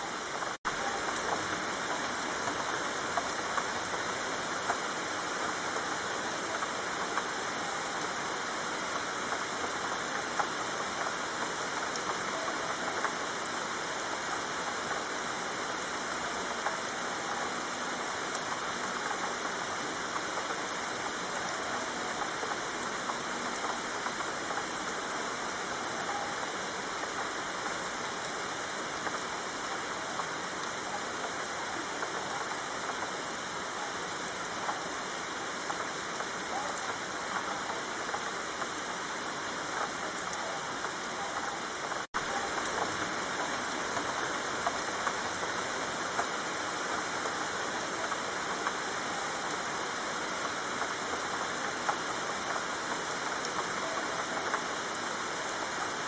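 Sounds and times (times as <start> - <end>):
rain falling on leaves: 0.0 - 56.0.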